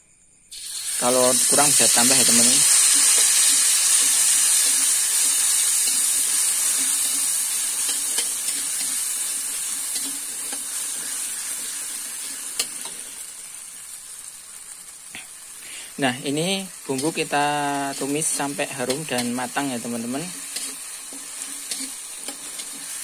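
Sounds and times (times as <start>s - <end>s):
spice paste sizzling in oil: 0.5s - 23.0s
spatula scraping wok: 1.3s - 14.0s, 15.2s - 23.0s.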